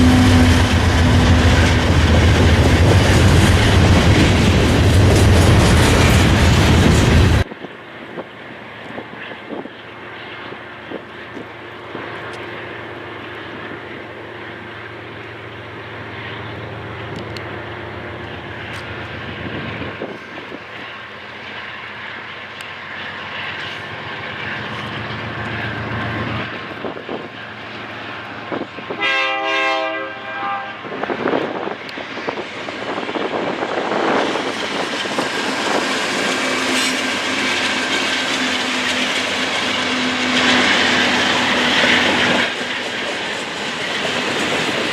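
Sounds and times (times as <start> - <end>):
locomotive horn blast: 0.0 - 1.9, 28.9 - 31.0
freight train rumbling: 0.0 - 44.9.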